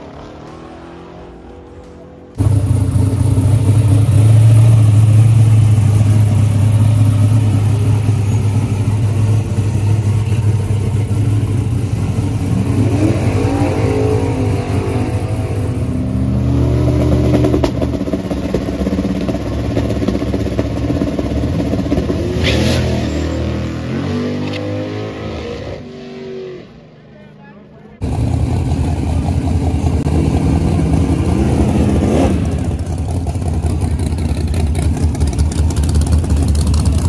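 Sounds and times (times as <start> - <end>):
race car engine idling: 1.8 - 12.8, 27.9 - 31.6, 32.6 - 37.0.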